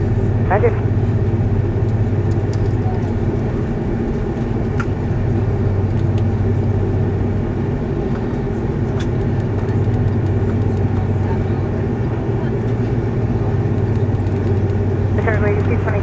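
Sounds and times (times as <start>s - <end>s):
airliner cabin engine hum: 0.0s - 16.0s
faint clicks: 8.1s - 11.0s, 13.6s - 15.8s.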